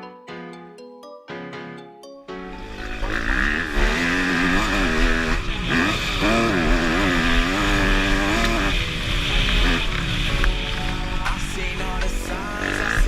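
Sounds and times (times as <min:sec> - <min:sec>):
motocross bike engine revving: 0:02.6 - 0:13.0.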